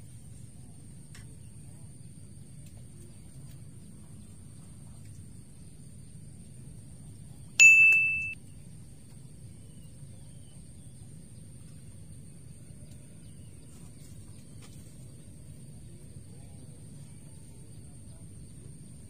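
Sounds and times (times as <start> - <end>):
low background noise: 0.0 - 19.0
bright bell-like ding: 7.6 - 8.4.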